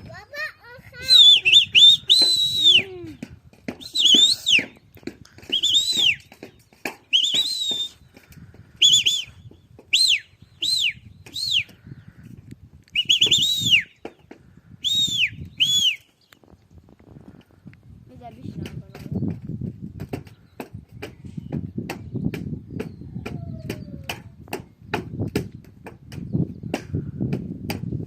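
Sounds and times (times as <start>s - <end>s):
bird whistling calls: 1.0s - 3.2s, 3.8s - 4.8s, 5.4s - 12.1s, 12.9s - 14.2s, 14.8s - 16.4s, 22.2s - 24.2s
scattered knocks: 18.6s - 28.0s.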